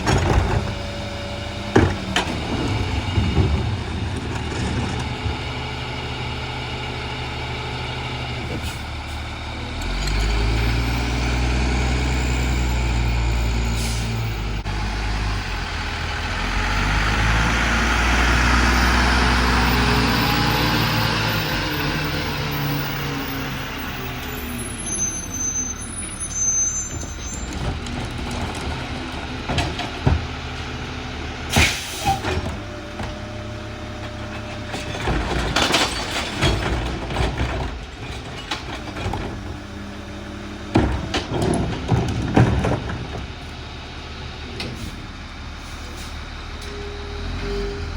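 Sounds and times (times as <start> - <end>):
garbage truck diesel engine: 0.0 - 47.9
knocks and clanks: 1.7 - 5.4, 34.0 - 39.4, 40.7 - 43.3.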